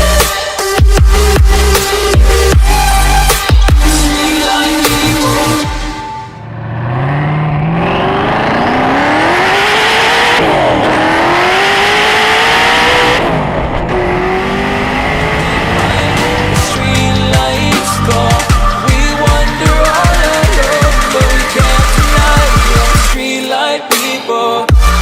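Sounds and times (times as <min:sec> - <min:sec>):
sports car engine accelerating: 0:06.2 - 0:23.1.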